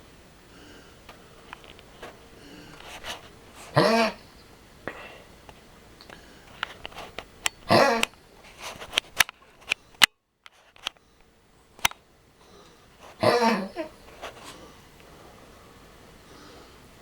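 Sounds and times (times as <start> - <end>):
dog coughing: 3.6 - 4.4, 7.6 - 8.2, 13.1 - 14.7.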